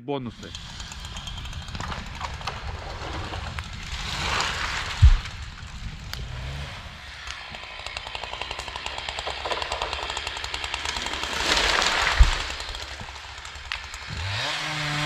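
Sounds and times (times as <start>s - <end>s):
chainsaw running: 0.3s - 15.0s.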